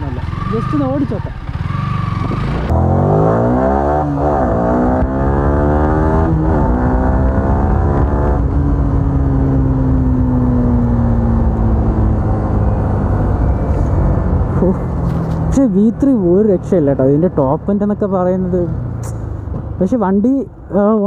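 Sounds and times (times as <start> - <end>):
motorcycle engine accelerating: 0.0 - 19.8.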